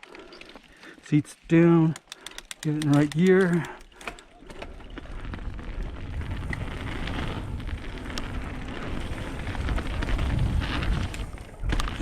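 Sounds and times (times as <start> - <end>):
wind noise on microphone: 5.2 - 12.0.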